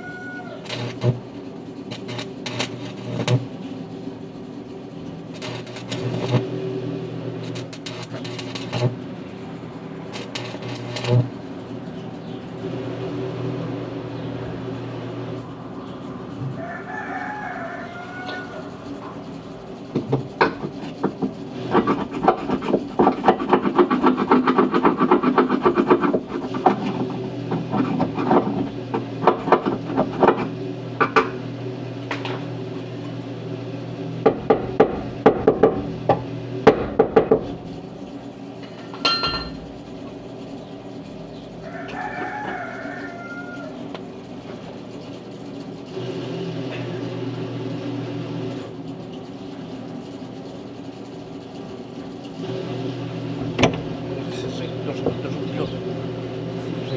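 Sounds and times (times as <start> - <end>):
rooster crowing: 0.0 - 1.2, 16.3 - 19.2, 41.5 - 44.0
welding hum: 0.0 - 16.5
welding crackling and clicking: 0.5 - 3.6, 5.3 - 6.5, 7.4 - 11.5.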